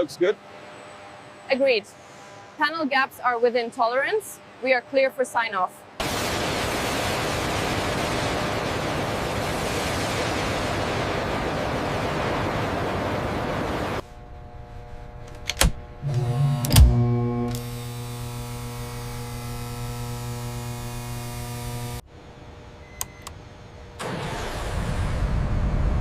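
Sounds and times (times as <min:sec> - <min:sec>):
steady rushing noise: 0:06.0 - 0:14.6
low electronic drone music: 0:14.1 - 0:19.7.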